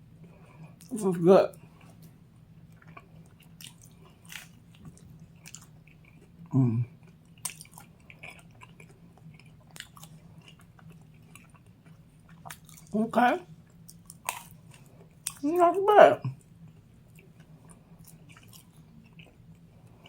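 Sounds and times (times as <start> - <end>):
chewing with wet mouth clicks: 1.5 - 13.0, 13.6 - 15.4, 16.4 - 20.0.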